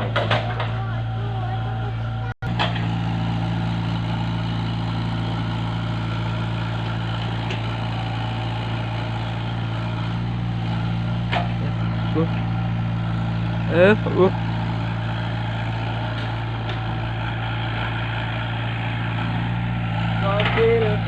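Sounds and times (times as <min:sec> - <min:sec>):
heavy engine idling: 0:00.0 - 0:21.0.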